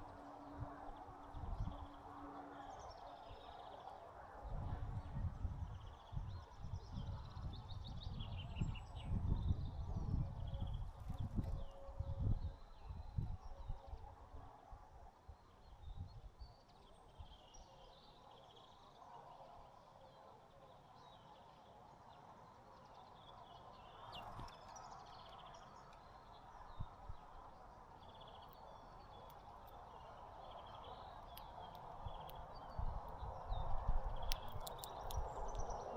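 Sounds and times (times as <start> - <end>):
small birds chirping: 21.1 - 35.9.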